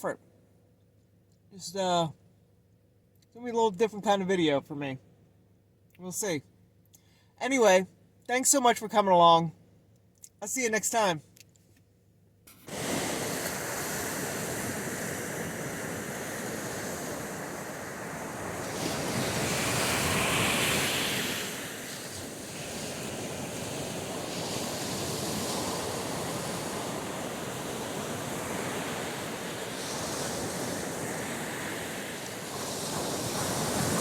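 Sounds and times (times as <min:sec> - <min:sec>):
waves on open water: 0:12.5 - 0:34.0
wind blowing across microphone: 0:12.7 - 0:34.0.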